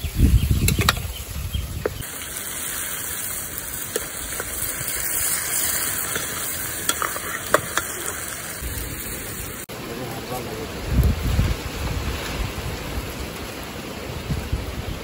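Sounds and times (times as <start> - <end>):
chicken sizzling in a pan: 1.2 - 9.7.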